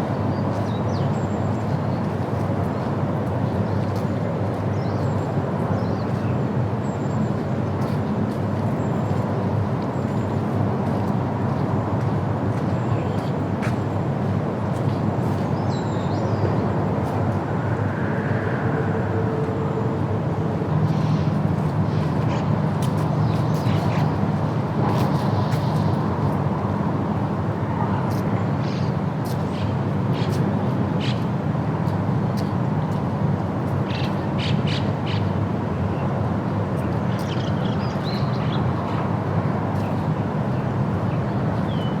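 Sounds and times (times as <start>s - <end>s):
outdoor background noise: 0.0s - 42.0s
low hum: 16.6s - 22.0s.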